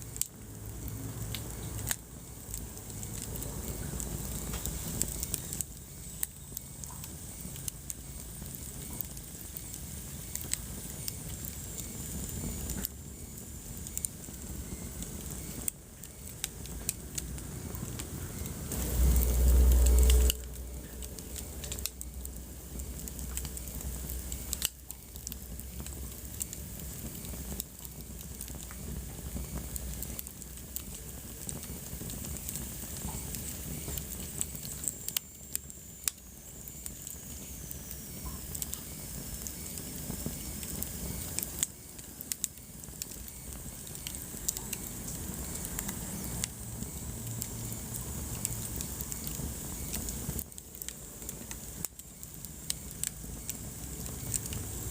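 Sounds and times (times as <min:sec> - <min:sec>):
wood fire crackling: 0:00.0 - 0:54.9
loud low rumble: 0:18.7 - 0:23.9.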